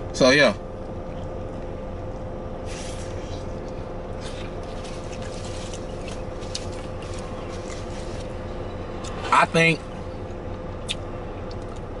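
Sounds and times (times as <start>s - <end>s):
low hum in car cabin: 0.0s - 12.0s
man chewing food: 0.8s - 9.2s, 10.2s - 12.0s
clicks and rustles of handling food: 3.0s - 8.4s.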